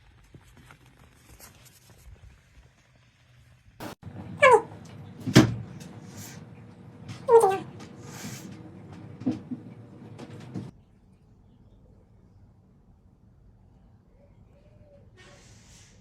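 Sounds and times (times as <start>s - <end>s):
pet animal crying: 4.3s - 4.9s, 7.2s - 8.5s.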